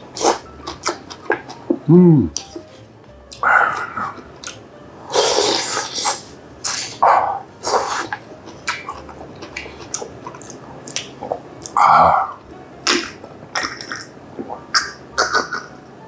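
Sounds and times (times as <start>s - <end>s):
wet chewing: 0.1s - 1.6s, 7.7s - 11.9s, 12.9s - 14.1s
slurping: 5.1s - 7.0s.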